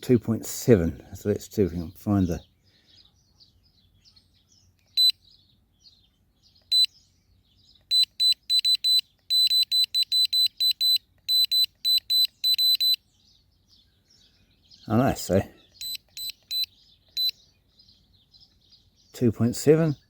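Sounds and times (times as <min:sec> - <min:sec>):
birds chirping faintly: 0:00.0 - 0:20.0
short high beeps: 0:07.9 - 0:13.0, 0:15.8 - 0:17.3.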